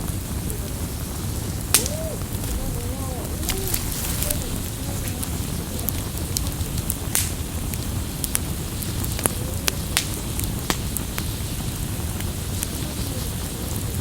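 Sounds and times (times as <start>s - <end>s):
campfire crackling and popping: 0.0s - 14.0s
low rumble of fire: 0.0s - 14.0s.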